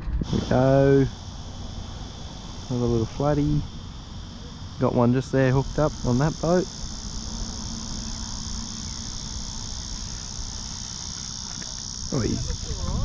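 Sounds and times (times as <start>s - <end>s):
low rumble: 0.0s - 10.6s
insects droning: 0.0s - 13.0s
person speaking: 12.1s - 13.0s.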